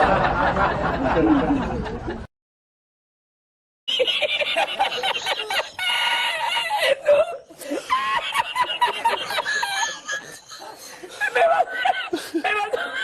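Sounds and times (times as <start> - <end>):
snickering laughter: 3.9 - 13.0.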